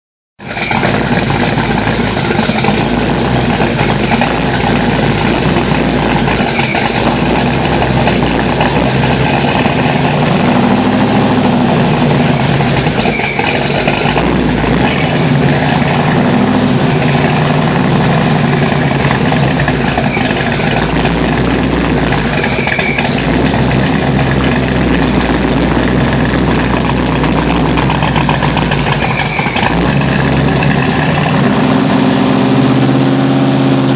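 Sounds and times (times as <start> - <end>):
car engine idling: 0.4 - 33.9.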